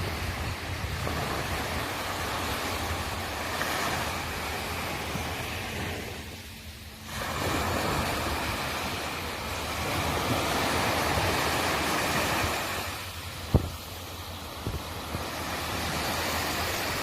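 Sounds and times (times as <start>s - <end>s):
sea waves on shore: 0.0s - 17.0s
sharp low thump: 13.5s - 13.8s.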